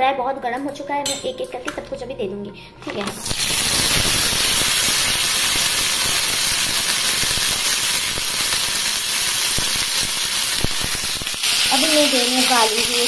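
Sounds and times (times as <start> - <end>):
onion sizzling in hot oil: 3.1 - 13.0.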